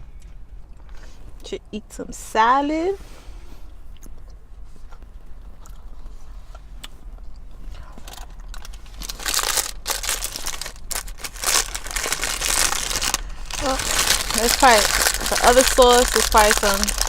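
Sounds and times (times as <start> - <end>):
plastic packaging crinkling: 8.1 - 17.0.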